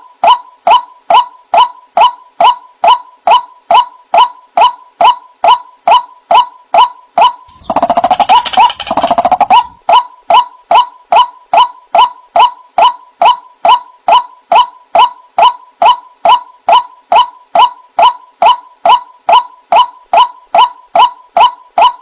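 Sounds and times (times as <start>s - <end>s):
waterhen calling sharp notes: 7.2s - 13.4s
bird chattering rapidly: 7.5s - 9.8s.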